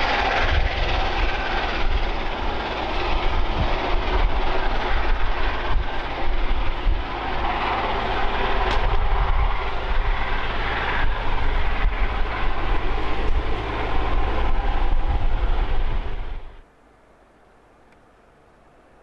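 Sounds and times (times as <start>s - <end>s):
steam train rushing: 0.0s - 16.6s
faint clicks: 17.8s - 18.1s.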